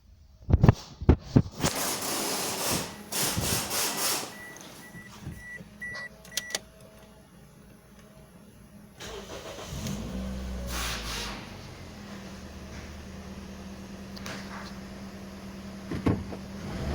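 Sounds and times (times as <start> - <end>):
heavy clunks: 15.8 - 16.5.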